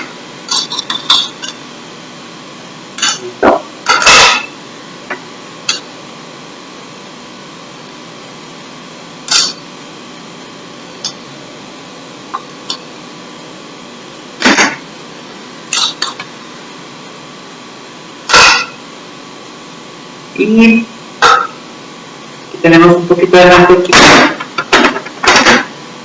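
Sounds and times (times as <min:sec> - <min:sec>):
steady background hum: 0:00.0 - 0:26.0
kitchen utensils clattering: 0:00.5 - 0:01.6, 0:03.0 - 0:04.6, 0:15.7 - 0:16.2, 0:21.2 - 0:21.6, 0:23.8 - 0:25.7.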